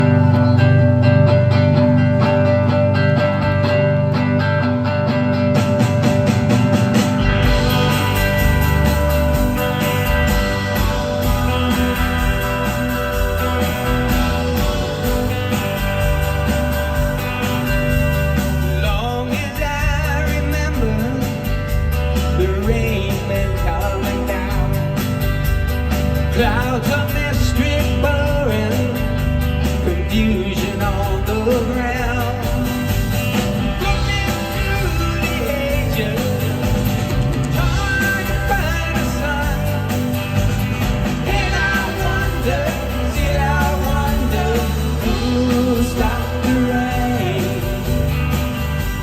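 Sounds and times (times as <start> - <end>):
deep bass line: 0.0 - 49.0
live rock band playing: 0.0 - 49.0
strummed guitar: 0.0 - 49.0
man singing: 18.3 - 25.1, 26.3 - 33.0, 33.6 - 40.4, 41.0 - 48.3.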